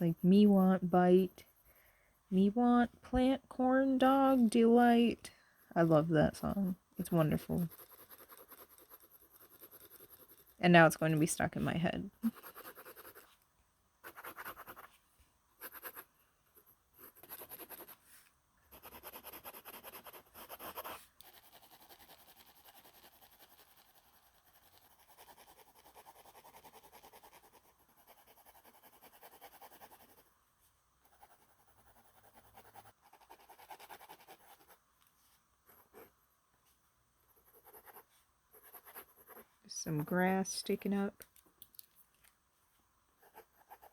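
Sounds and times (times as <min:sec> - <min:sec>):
pencil scratching on paper: 0:00.0 - 0:01.8, 0:02.6 - 0:05.1, 0:05.8 - 0:11.2, 0:12.2 - 0:13.4, 0:14.0 - 0:15.0, 0:15.6 - 0:30.3, 0:31.0 - 0:34.8, 0:35.6 - 0:36.1, 0:37.2 - 0:39.6, 0:43.2 - 0:43.9.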